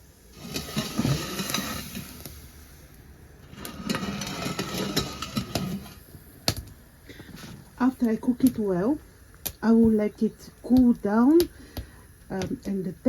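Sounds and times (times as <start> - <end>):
pots clattering and knocking: 0.3 - 2.4, 3.4 - 7.6.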